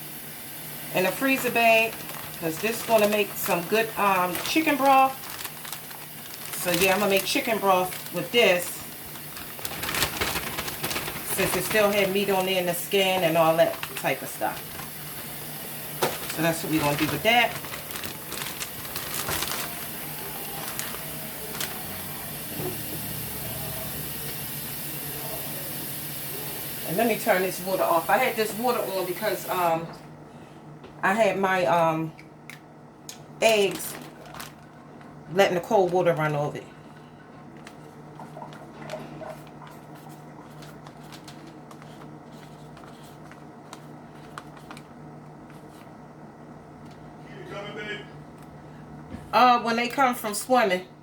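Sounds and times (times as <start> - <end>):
tap water running: 0.0 - 29.9.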